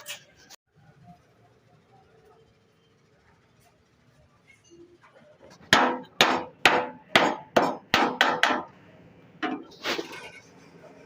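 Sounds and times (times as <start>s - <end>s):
hammer striking sheet metal: 5.7s - 8.7s.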